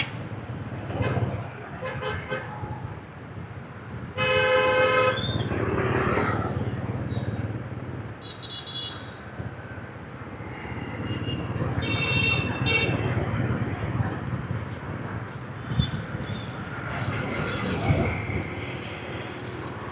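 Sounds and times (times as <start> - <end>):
loud vehicle horn blast: 4.2 - 5.9
motorbike engines rumbling: 5.3 - 19.9.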